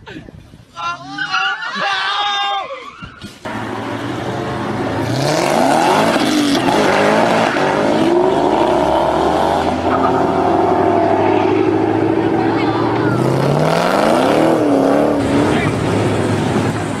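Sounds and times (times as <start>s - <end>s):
road and wind noise: 0.0s - 17.0s
car engine revving hard: 3.5s - 17.0s.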